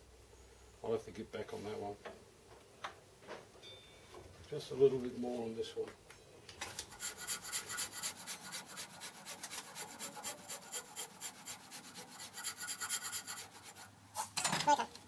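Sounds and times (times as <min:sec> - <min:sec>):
hand file rasping: 0:06.8 - 0:14.0.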